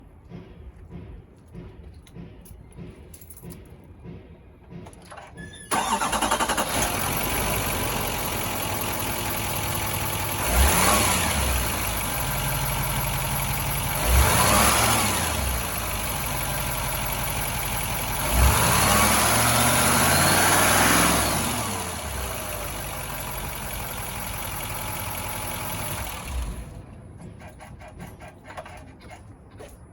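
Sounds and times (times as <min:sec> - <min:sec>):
truck engine starting: 0:04.8 - 0:28.8
truck engine revving: 0:05.7 - 0:26.8
truck engine idling: 0:05.7 - 0:27.0.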